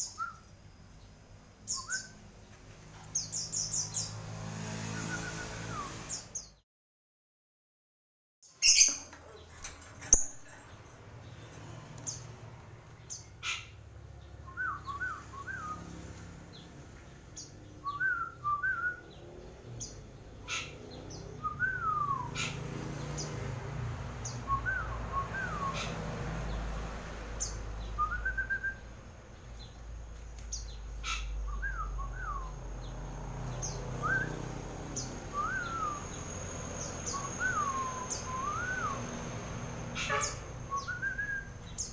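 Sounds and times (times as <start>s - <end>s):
bird whistled chirps: 0.0s - 0.5s, 1.7s - 2.2s, 8.6s - 9.0s, 14.4s - 15.9s, 17.8s - 19.2s, 21.4s - 22.6s, 24.2s - 26.0s, 27.4s - 28.9s, 31.0s - 32.6s, 33.6s - 34.4s, 35.0s - 39.4s, 40.0s - 41.9s.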